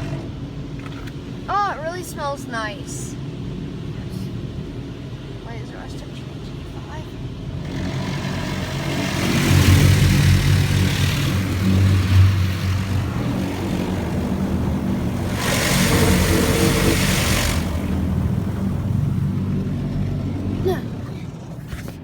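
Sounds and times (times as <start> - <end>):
steady low hum: 0.0 - 22.0
car wash spray hissing: 7.7 - 21.3.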